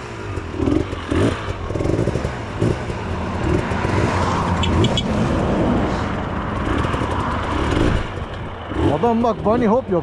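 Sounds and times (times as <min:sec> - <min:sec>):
motorcycle engine running: 0:00.0 - 0:05.3, 0:06.0 - 0:10.0.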